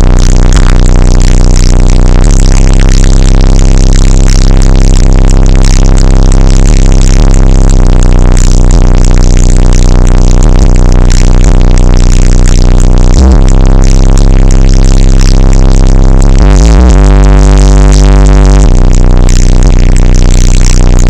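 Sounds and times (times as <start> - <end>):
loud electronic music with bass: 0.0 - 21.0.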